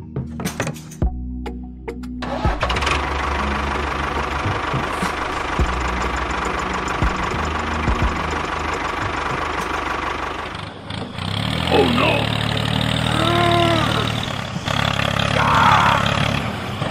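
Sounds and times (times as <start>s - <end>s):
background music: 0.0s - 16.4s
model tractor engine rattling: 2.2s - 13.1s.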